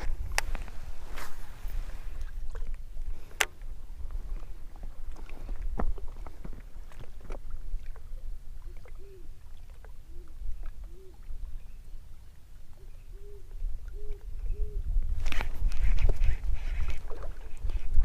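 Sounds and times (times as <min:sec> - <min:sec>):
bird hooting calls: 0:08.6 - 0:09.4, 0:10.1 - 0:11.8, 0:12.7 - 0:14.9.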